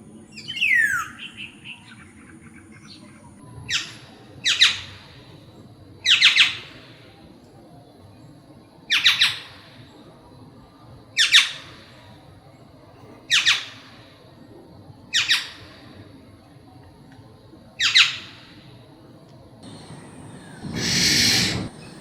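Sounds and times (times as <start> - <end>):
bird squawking double call: 19.9 - 22.0.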